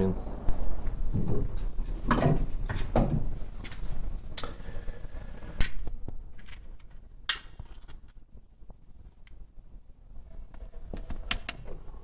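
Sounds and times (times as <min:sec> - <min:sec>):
firewood knocking and clattering: 0:00.5 - 0:05.6.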